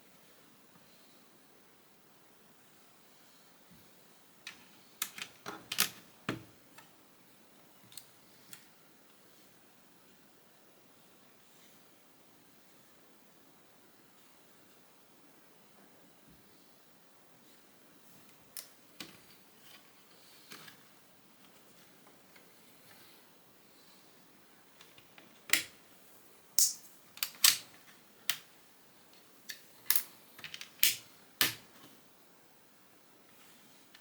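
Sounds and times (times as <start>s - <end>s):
plastic bricks snapping together: 29.9s - 31.6s.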